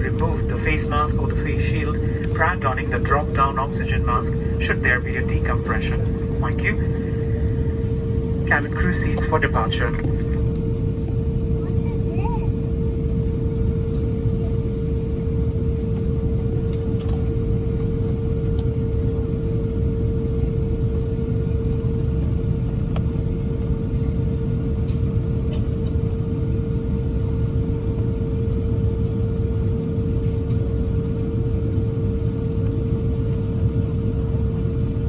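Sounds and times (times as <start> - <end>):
airplane cabin engine rumble: 0.0 - 35.0.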